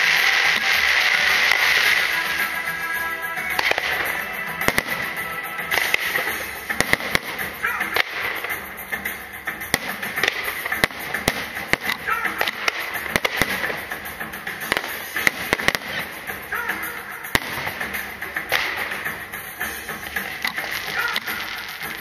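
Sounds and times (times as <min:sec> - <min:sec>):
fireworks bangs: 0:00.0 - 0:22.0
fireworks crackling: 0:00.0 - 0:22.0
music playing: 0:00.0 - 0:22.0.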